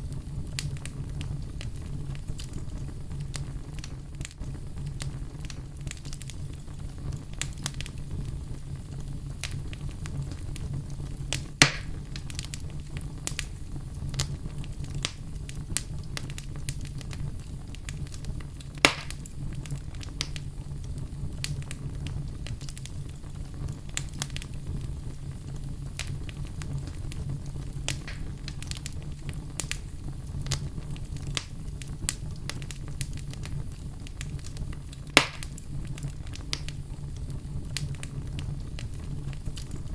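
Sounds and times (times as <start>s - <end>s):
low rumble of flames: 0.0s - 39.9s
wood fire crackling: 0.0s - 39.9s
loud wood pops: 11.6s - 12.0s, 18.8s - 19.3s, 27.9s - 28.3s, 35.2s - 35.6s.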